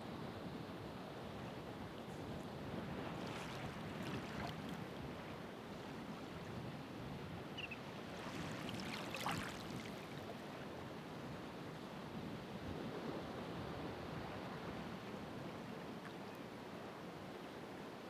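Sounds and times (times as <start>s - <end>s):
ocean waves washing ashore: 0.4s - 18.0s.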